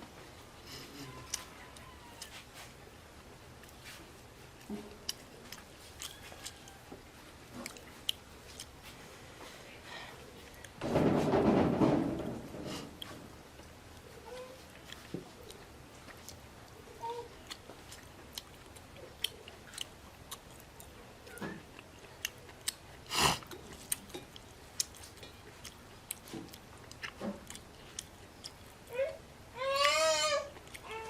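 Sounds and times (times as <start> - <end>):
wet chewing and lip smacks: 4.6 - 6.8, 7.6 - 9.0, 14.8 - 28.8, 30.6 - 30.9.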